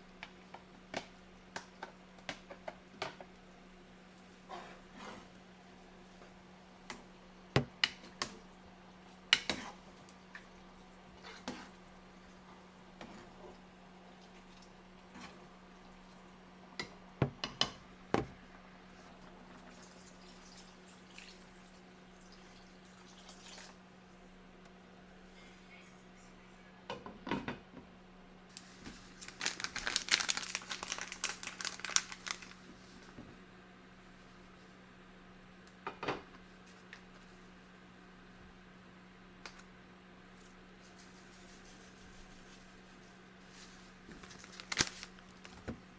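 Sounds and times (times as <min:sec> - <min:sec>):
packaging crinkling: 0:28.5 - 0:32.7, 0:43.5 - 0:45.8.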